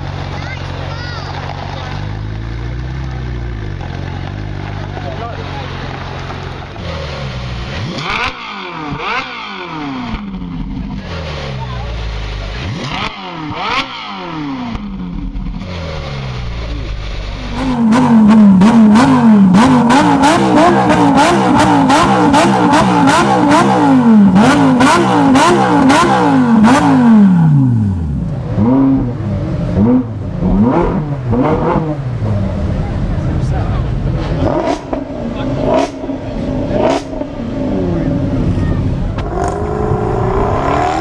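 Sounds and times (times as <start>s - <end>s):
exhaust cracks: 0.0s - 41.0s
supercar engines revving: 0.0s - 41.0s.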